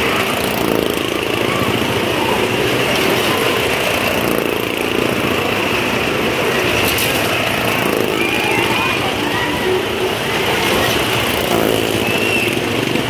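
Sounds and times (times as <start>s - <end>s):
stunt vehicle engines: 0.0s - 13.0s.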